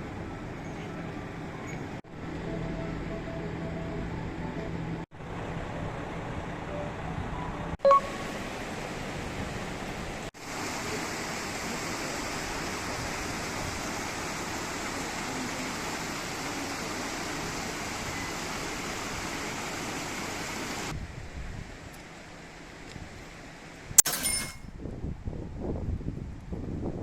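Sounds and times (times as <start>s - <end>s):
water rushing: 7.9s - 20.9s.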